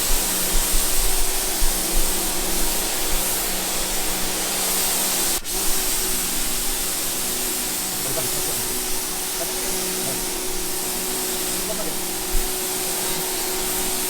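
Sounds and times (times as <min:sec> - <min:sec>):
water spraying hiss: 0:00.0 - 0:14.0
faint motor hum: 0:05.6 - 0:14.0.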